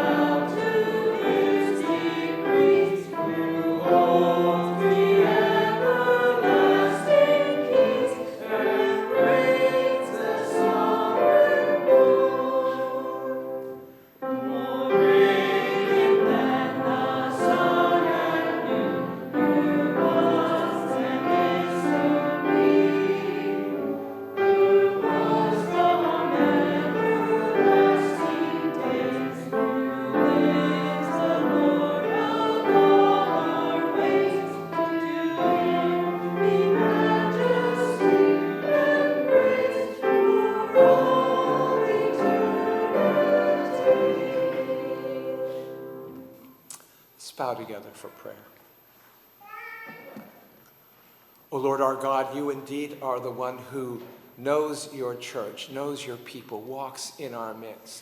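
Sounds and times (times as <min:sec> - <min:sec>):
congregation singing a hymn: 0:00.0 - 0:46.6.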